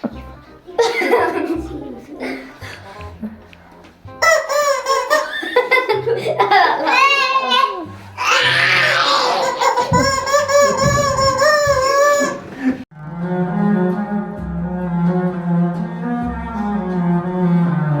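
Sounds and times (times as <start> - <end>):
slow low bowed string music: 12.5 - 18.0.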